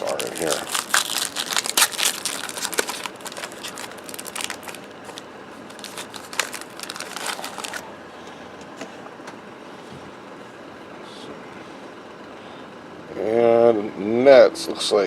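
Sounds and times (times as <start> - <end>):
wrapper crinkling and crackling: 0.0 - 7.9.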